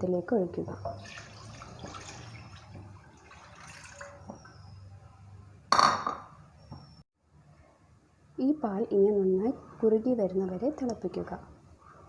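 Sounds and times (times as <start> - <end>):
milk pouring into a pan: 1.0 - 4.3.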